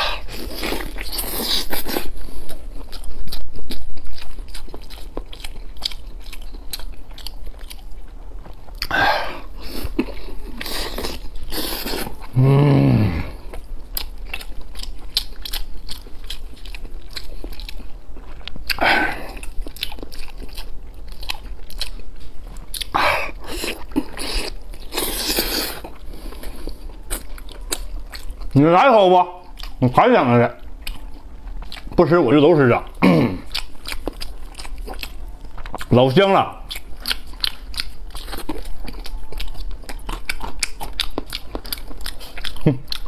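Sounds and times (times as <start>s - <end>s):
chewing with mouth clicks: 0.1s - 12.4s, 13.3s - 28.6s, 29.4s - 32.1s, 32.8s - 43.0s
person humming: 12.3s - 13.5s.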